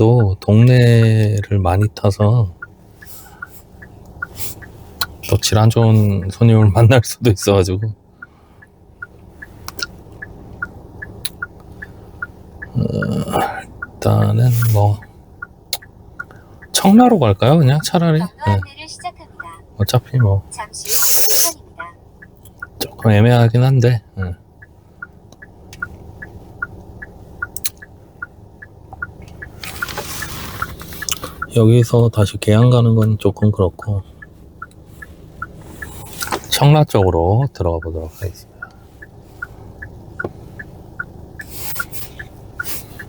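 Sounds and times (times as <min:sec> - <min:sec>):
road and engine rumble: 0:00.0 - 0:43.0
turn signal ticking: 0:00.0 - 0:43.0
man's voice murmuring: 0:12.7 - 0:15.0, 0:16.8 - 0:18.7.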